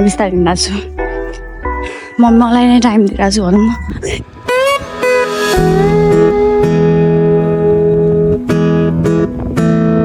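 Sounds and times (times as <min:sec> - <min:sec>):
acoustic guitar strumming chords: 0:04.3 - 0:10.0.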